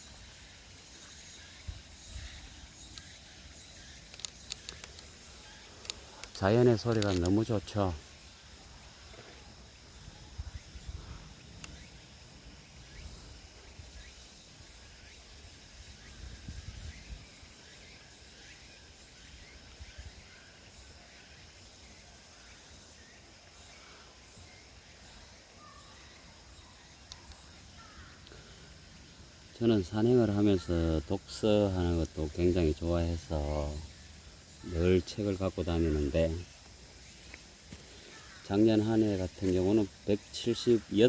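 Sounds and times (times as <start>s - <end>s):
high insect hum: 0.0s - 41.0s
small chirps: 1.3s - 7.9s, 9.0s - 12.0s, 26.3s - 28.8s.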